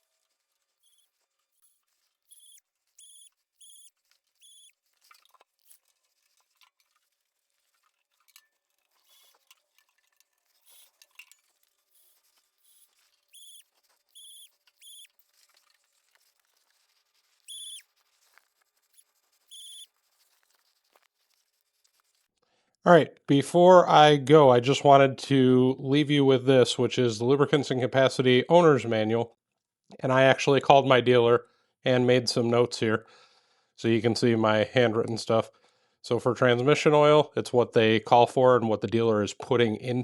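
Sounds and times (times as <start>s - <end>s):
cordless grease gun whirring: 0.8s - 4.7s, 11.9s - 15.2s.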